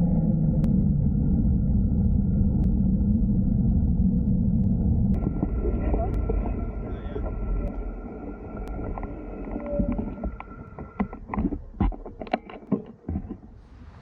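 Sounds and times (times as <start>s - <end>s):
faint steady whine: 0.0s - 14.0s
sharp knocks and clicks: 6.1s - 13.6s.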